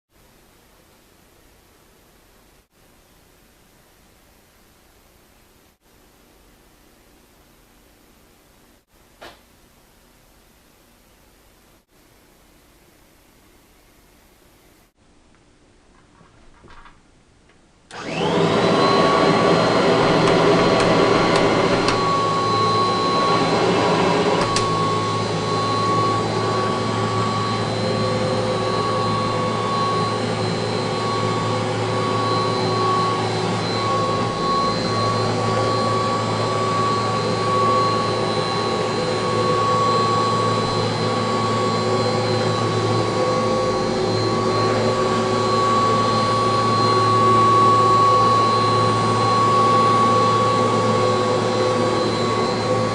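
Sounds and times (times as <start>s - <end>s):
vacuum cleaner motor whining: 17.9s - 52.9s.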